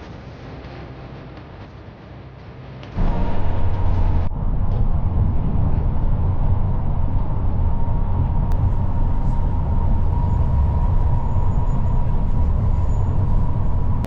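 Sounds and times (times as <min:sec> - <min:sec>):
vehicle engine and road noise: 0:00.0 - 0:14.0
faint steady whine: 0:03.0 - 0:14.0.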